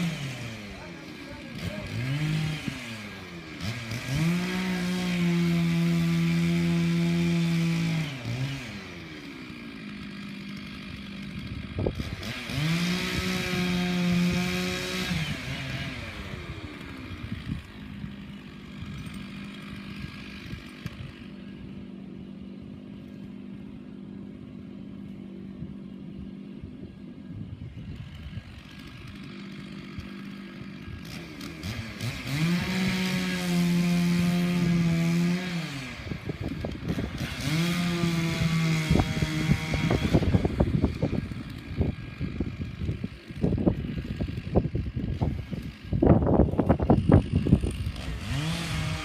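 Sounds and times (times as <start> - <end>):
chainsaw revving and idling: 0.0 - 49.0.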